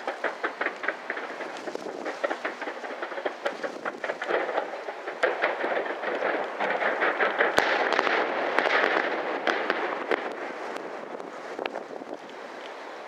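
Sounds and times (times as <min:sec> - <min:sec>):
sharp firework bang: 0:00.0 - 0:10.4
fireworks crackling and popping: 0:00.0 - 0:13.0.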